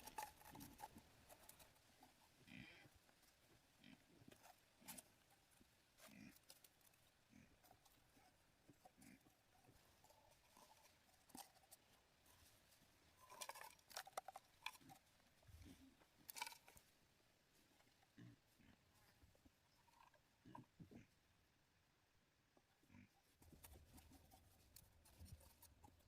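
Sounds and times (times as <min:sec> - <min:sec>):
faint scattered clicks and knocks: 0:00.0 - 0:17.0.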